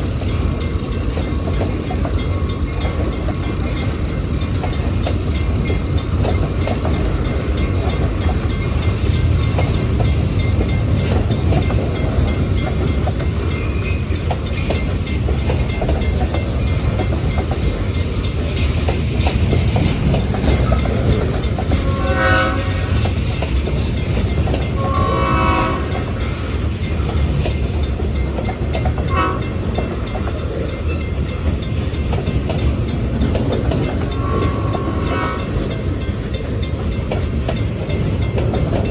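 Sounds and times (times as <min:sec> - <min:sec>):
freight train rumbling past: 0:00.0 - 0:38.9
wheels clacking over rail joints: 0:00.0 - 0:38.9
train horn blasts: 0:21.6 - 0:23.2, 0:24.7 - 0:26.4, 0:29.0 - 0:29.7, 0:34.0 - 0:35.9.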